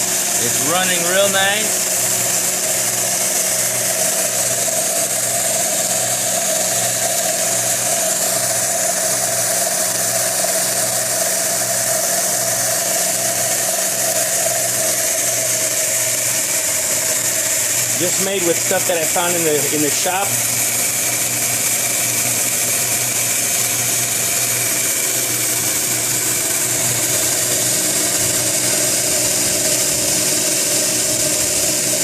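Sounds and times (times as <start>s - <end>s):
belt sander motor hum: 0.0s - 32.0s
belt hissing: 13.9s - 24.4s.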